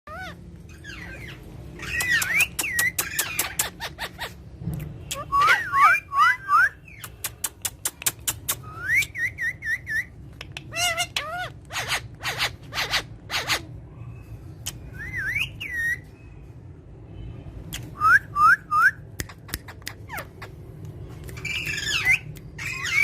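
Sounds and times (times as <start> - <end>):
parrot screechy calls: 0.1 - 4.4, 5.1 - 7.0, 8.6 - 16.2, 21.3 - 23.0
parrot whistling: 5.1 - 6.9.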